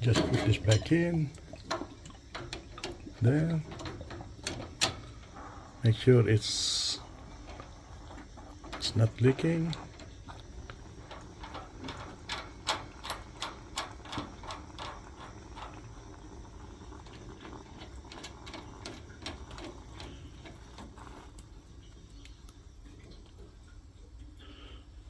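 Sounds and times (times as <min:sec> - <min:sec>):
sharp metallic clicks of fittings: 0:00.0 - 0:16.2.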